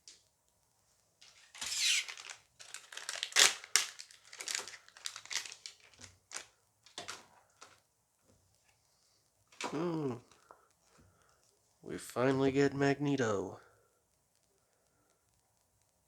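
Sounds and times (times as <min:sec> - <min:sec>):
foil pack ripping open: 0:01.2 - 0:07.8
foil wrapper crinkling: 0:01.2 - 0:07.8.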